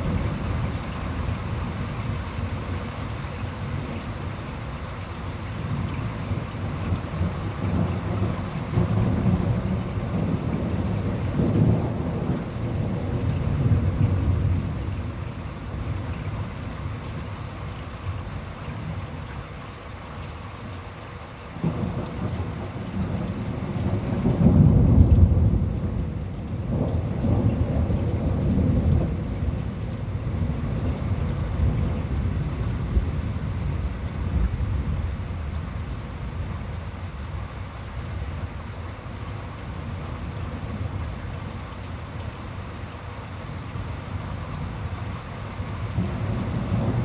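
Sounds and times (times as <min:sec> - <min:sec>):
steady rain: 0:00.0 - 0:47.0
thunder rumbling: 0:05.8 - 0:15.1, 0:21.6 - 0:36.8, 0:45.6 - 0:47.0.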